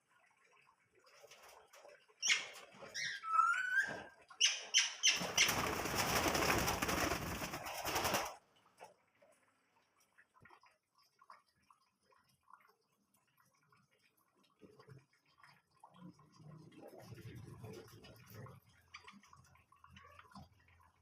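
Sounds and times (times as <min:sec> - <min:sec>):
caged birds chirping: 0:02.2 - 0:06.5
wings flapping: 0:05.0 - 0:08.4.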